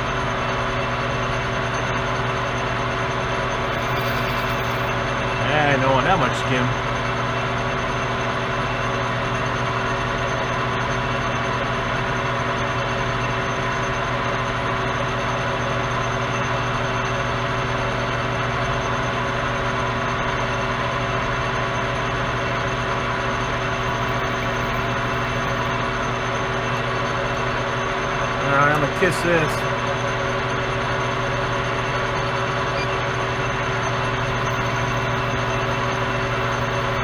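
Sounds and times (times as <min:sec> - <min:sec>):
metal lathe humming: 0:00.0 - 0:37.0.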